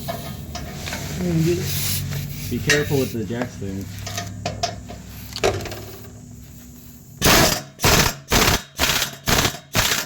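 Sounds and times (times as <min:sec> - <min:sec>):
ratchet wrench clicking: 0:07.4 - 0:10.0.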